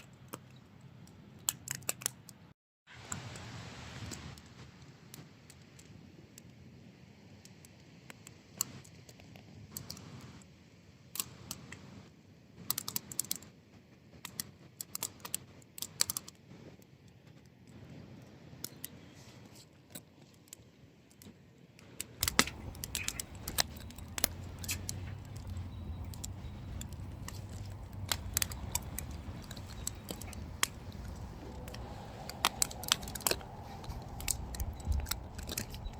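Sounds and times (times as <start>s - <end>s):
low steady rumble: 22.2s - 35.9s
wood fire crackling and popping: 22.2s - 35.9s.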